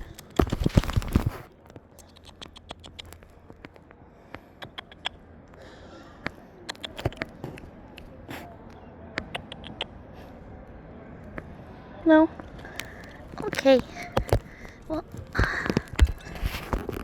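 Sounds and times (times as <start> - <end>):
light scratching: 0.0 - 3.9, 6.7 - 8.6, 12.4 - 17.0
sharp clicks: 0.0 - 3.9, 6.2 - 8.1.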